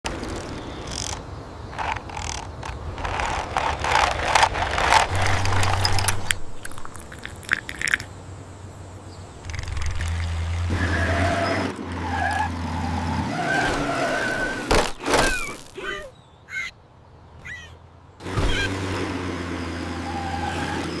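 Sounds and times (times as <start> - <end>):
sharp clicks: 0.1 - 8.1, 9.4 - 10.6
toy truck scraping and rattling: 0.1 - 8.1.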